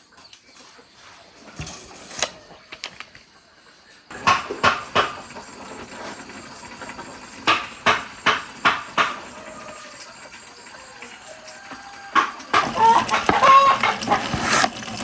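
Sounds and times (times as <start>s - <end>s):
sharp knocks: 4.1s - 5.2s.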